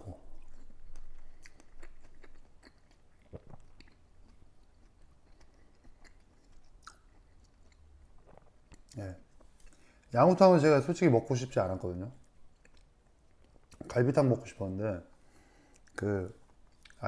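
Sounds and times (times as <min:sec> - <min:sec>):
person chewing food: 0:00.2 - 0:10.1, 0:12.2 - 0:13.9, 0:15.3 - 0:17.0.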